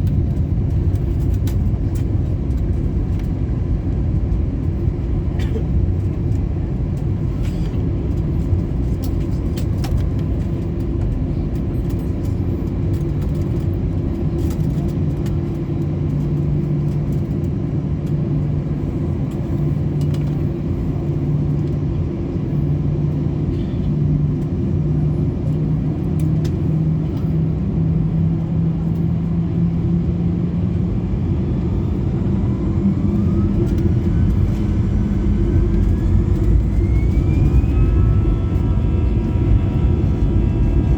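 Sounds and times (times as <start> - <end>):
jet engine whine rising: 0.0 - 40.9
jet engines idling: 0.0 - 40.9.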